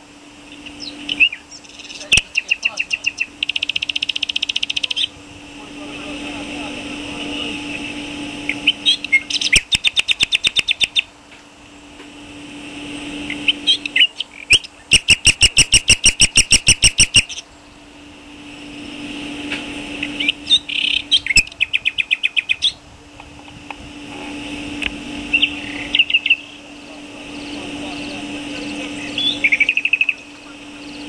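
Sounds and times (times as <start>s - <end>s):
steady low hum: 0.0s - 31.0s
bird singing rapid high notes: 13.3s - 17.5s, 20.0s - 22.8s.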